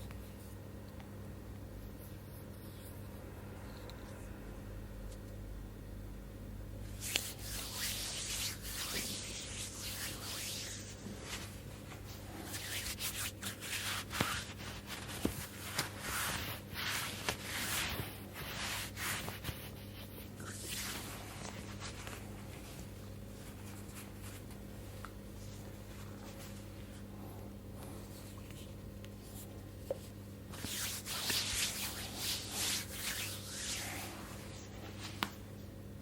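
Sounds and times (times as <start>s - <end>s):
low steady hum: 0.0s - 36.0s
hands rubbing in massage: 7.0s - 24.6s, 28.0s - 35.5s.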